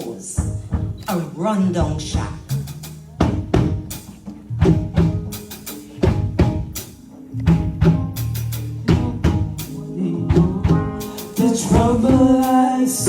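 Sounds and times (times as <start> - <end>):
sustained low bass notes: 0.4 - 13.0
drum kit hits: 1.8 - 12.6.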